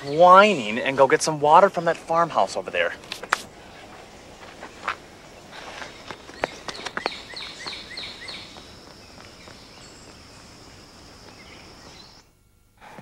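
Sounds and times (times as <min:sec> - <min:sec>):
high insect-like tone: 0:02.8 - 0:12.4
bird chirping: 0:03.2 - 0:12.4.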